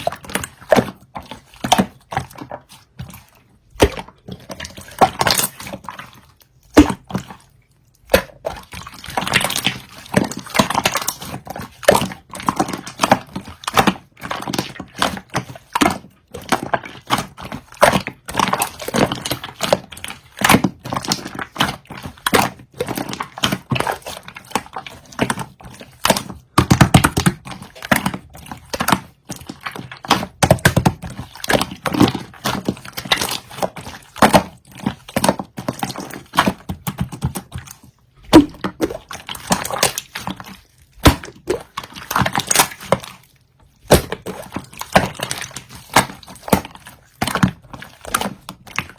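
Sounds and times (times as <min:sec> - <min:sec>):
slime squelching and popping: 0:00.0 - 0:48.9.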